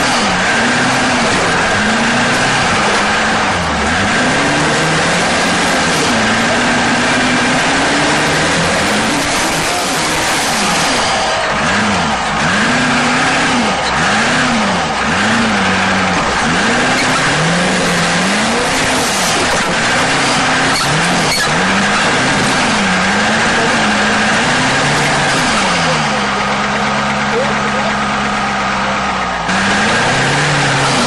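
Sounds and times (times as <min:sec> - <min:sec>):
loud steady rushing noise: 0:00.0 - 0:31.0
truck engine revving: 0:00.0 - 0:31.0.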